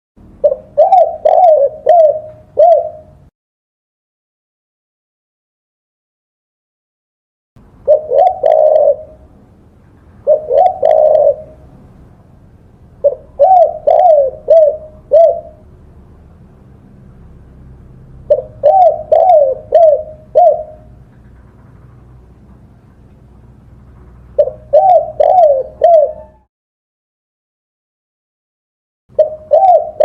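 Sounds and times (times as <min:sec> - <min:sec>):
dove cooing: 0:00.4 - 0:03.3, 0:07.9 - 0:09.3, 0:10.2 - 0:11.7, 0:13.0 - 0:15.7, 0:18.3 - 0:21.6, 0:24.1 - 0:26.5, 0:29.2 - 0:30.0.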